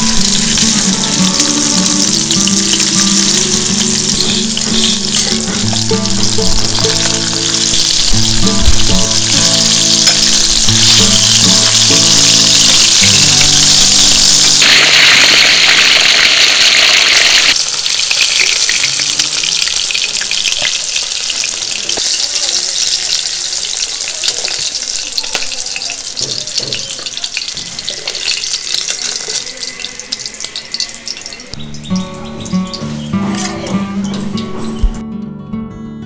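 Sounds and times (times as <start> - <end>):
fish frying in hot oil: 0.0 - 32.1.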